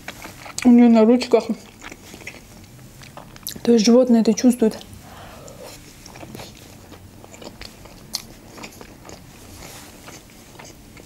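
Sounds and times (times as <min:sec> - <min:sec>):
close chewing: 0:00.0 - 0:03.7, 0:04.7 - 0:11.0
wet mouth clicks: 0:04.8 - 0:06.3.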